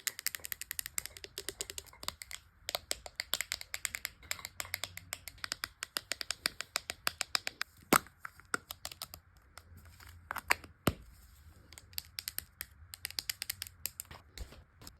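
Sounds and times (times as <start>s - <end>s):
packaging taps and clicks: 0.0s - 9.7s.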